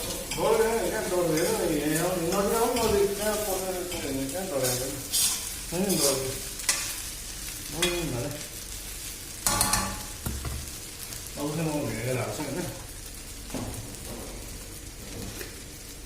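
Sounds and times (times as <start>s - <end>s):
noodles sizzling in a pan: 0.0s - 16.0s
metal spatula scraping a pan: 4.6s - 7.0s.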